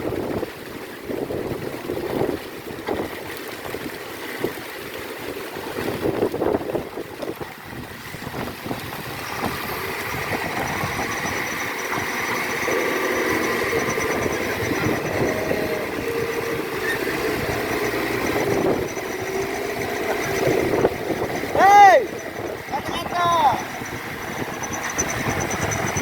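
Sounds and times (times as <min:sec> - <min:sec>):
truck engine labouring: 0:05.9 - 0:26.0.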